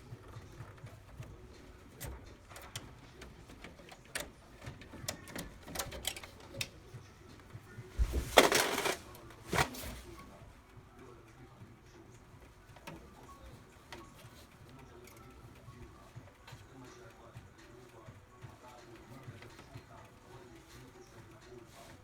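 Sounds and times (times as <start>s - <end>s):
scraping and rustling: 7.9s - 10.4s.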